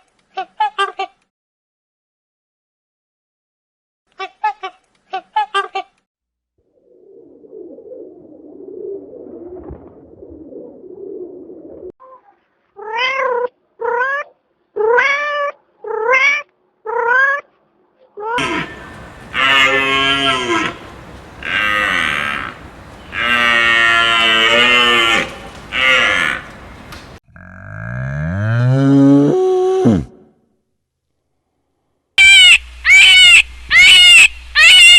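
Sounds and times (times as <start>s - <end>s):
murmur of animal calls: 18.4s - 27.6s
long loud animal calls: 18.4s - 27.9s, 32.2s - 34.9s.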